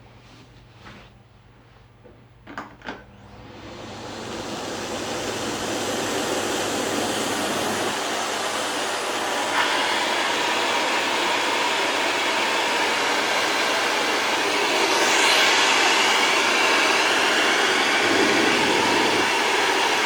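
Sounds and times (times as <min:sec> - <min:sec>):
vacuum cleaner motor running: 0:03.1 - 0:20.0.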